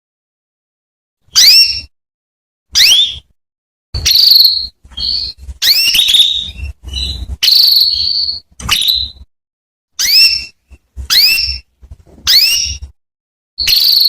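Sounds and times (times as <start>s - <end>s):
canary calling: 1.3s - 1.9s, 2.8s - 3.3s, 4.0s - 9.2s, 10.0s - 11.7s, 12.3s - 12.9s, 13.6s - 14.0s.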